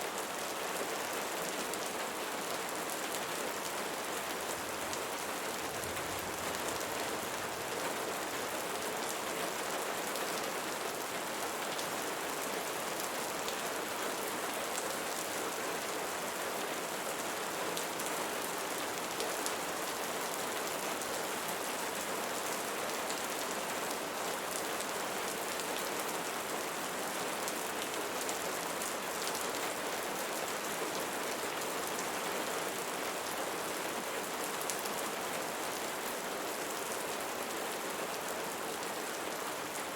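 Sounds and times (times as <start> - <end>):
rain pattering: 3.0 - 9.9.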